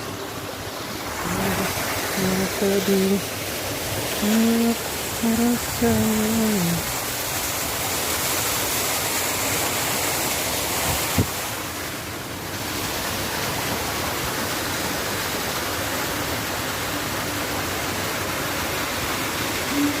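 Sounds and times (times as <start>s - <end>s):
waterfall cascading and splashing: 0.0s - 20.0s.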